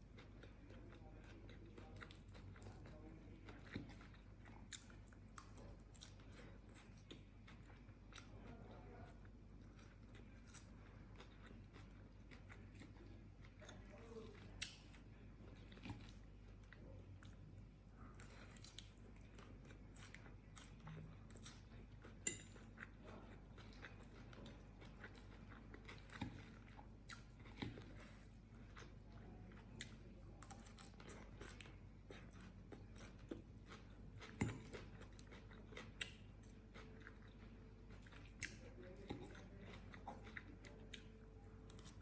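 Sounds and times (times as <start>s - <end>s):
person chewing and crunching food: 0.0s - 42.0s.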